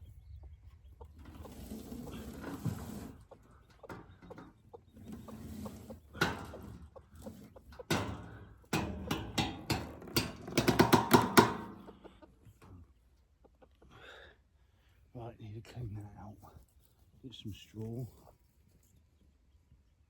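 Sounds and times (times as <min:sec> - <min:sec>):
hen clucking: 0:00.0 - 0:14.2
sharp knocks and rattles: 0:01.0 - 0:12.7.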